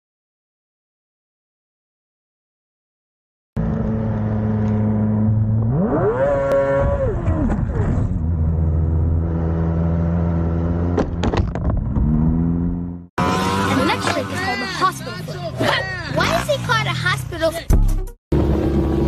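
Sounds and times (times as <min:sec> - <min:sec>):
vehicle engine running and revving: 0:03.6 - 0:17.5, 0:18.3 - 0:19.0.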